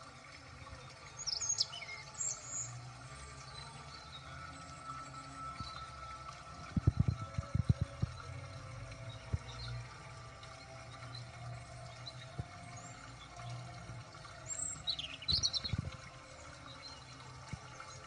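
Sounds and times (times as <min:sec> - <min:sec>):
bird chirping: 0:14.6 - 0:15.8.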